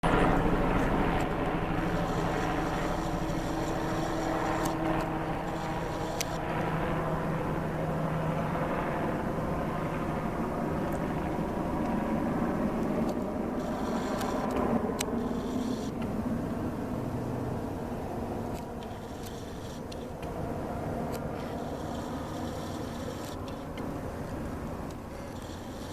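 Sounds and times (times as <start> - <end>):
helicopter engine and rotor drone: 0.0 - 25.9
sharp clicks: 0.8 - 6.7, 12.8 - 16.1, 18.4 - 20.4, 21.1 - 25.9.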